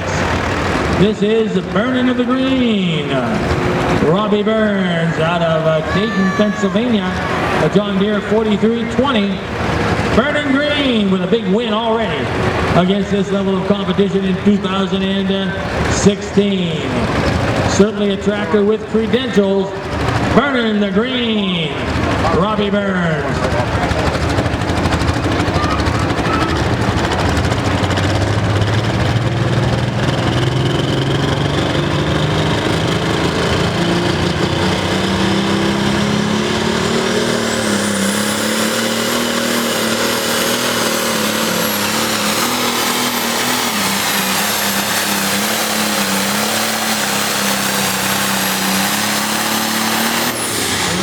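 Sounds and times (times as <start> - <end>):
tractor engine under full load: 0.0 - 51.0
high turbocharger whistle: 5.0 - 9.2, 24.8 - 51.0.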